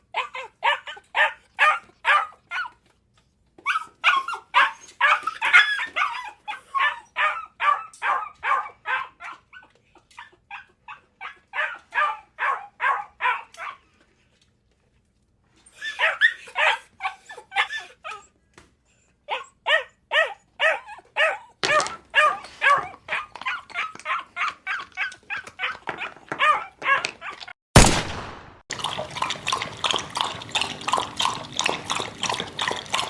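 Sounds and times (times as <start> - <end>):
dog barking: 0.2 - 2.7, 4.0 - 9.4, 10.5 - 13.8, 16.0 - 17.8, 19.3 - 27.5.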